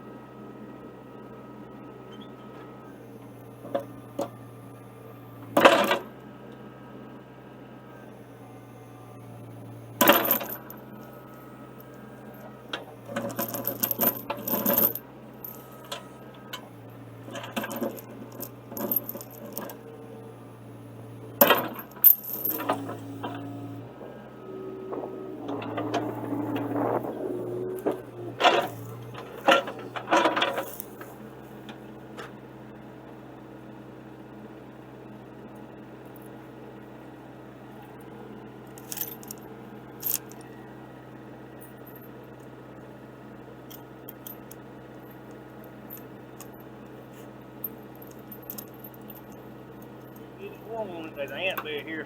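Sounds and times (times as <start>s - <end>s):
excavator engine humming: 0.0s - 52.0s
steel chain clanking on metal: 10.0s - 10.8s, 13.1s - 19.8s, 21.4s - 23.7s, 27.8s - 31.1s, 38.8s - 39.4s, 47.6s - 50.2s.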